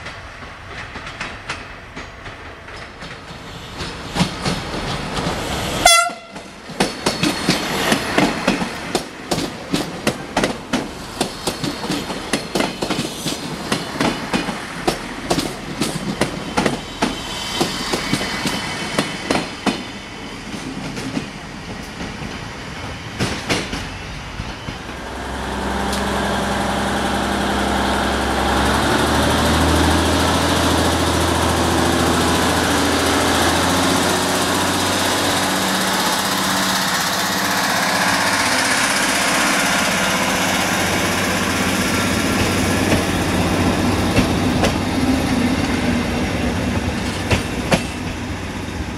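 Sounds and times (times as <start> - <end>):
train wheels clattering over rails: 0.0 - 48.9
train horn toot: 5.8 - 6.5.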